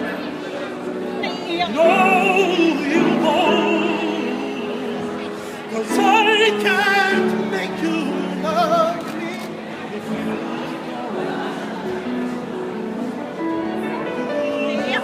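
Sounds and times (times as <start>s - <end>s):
man singing operatically: 1.7s - 9.5s.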